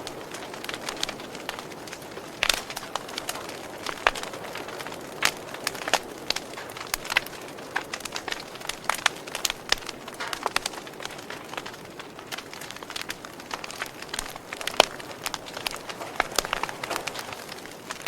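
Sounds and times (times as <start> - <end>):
soft hiss of burning: 0.0 - 18.0
wood fire crackling and popping: 0.0 - 18.0.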